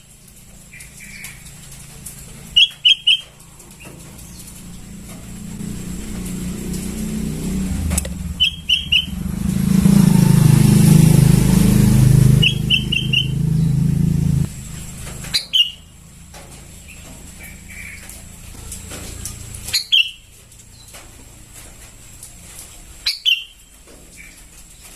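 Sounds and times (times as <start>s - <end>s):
passing vehicle rumble: 3.7s - 20.0s
bird chirping: 7.6s - 14.1s, 19.7s - 20.9s.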